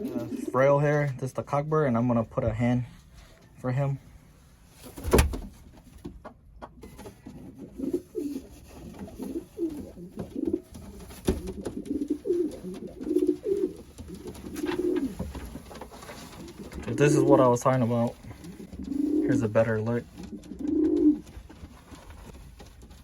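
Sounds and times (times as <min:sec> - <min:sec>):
pigeon cooing: 0:07.3 - 0:15.4, 0:16.4 - 0:17.6, 0:18.2 - 0:21.2.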